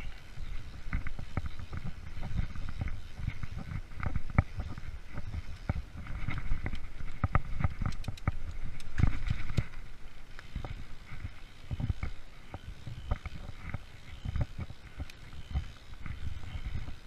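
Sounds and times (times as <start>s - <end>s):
bike knocks and rattles: 0.0s - 17.0s
bike tyres rumbling on trail: 0.0s - 17.0s.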